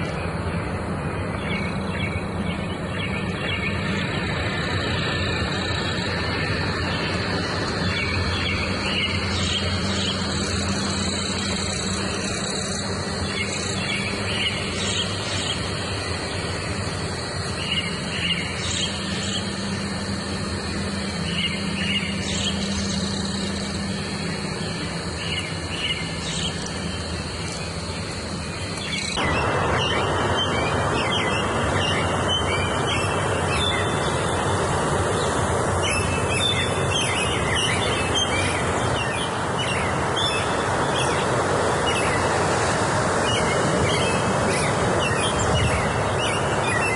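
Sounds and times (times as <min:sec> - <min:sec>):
songbirds chirping and trilling: 0:00.0 - 0:46.9
steady background hiss: 0:00.0 - 0:46.9.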